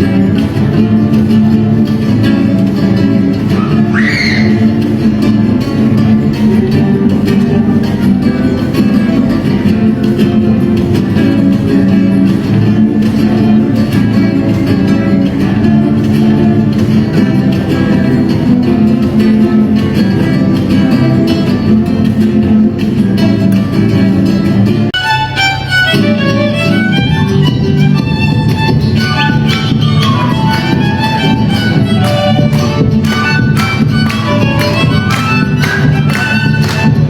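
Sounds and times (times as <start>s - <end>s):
guitars strumming: 0.0s - 37.0s
violins playing: 25.0s - 37.0s.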